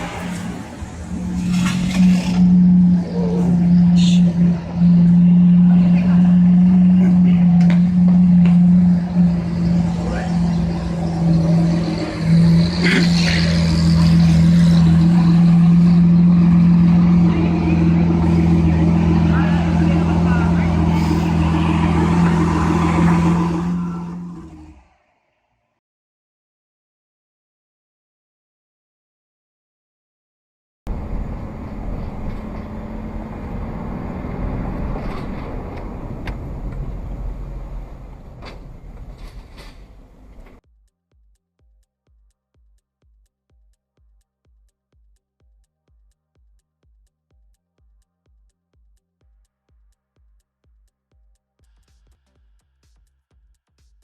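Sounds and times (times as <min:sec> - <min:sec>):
motor vehicle engine drone: 0:00.0 - 0:25.6, 0:30.9 - 0:40.7.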